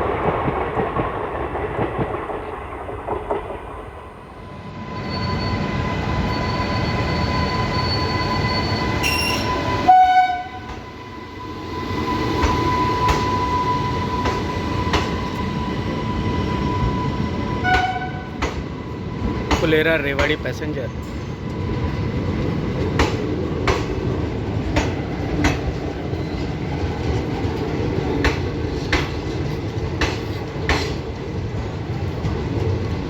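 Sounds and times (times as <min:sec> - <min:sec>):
train rumbling: 0:00.0 - 0:33.0
train horn blasts: 0:09.0 - 0:10.8, 0:17.6 - 0:18.4.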